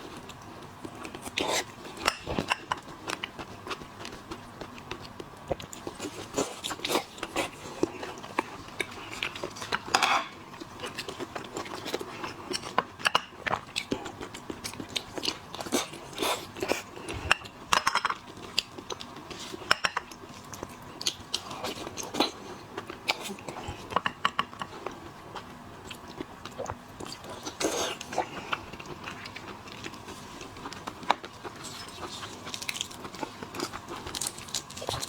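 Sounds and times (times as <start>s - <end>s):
crunching and chewing shellfish: 0.0s - 35.0s.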